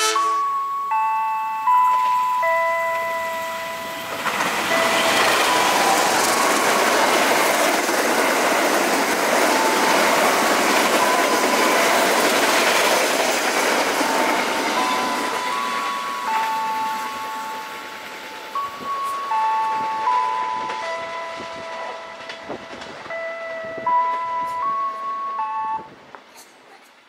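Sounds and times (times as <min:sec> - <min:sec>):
train wheels rushing on rail: 0:01.9 - 0:25.4
clickety-clack of coaches: 0:19.0 - 0:24.7.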